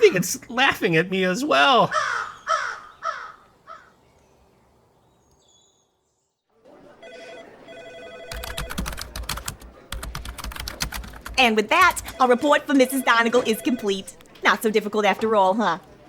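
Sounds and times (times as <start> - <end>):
crow cawing: 1.9 - 4.0
telephone ringing: 7.0 - 9.2, 11.6 - 14.2
fast keyboard typing: 8.3 - 14.0.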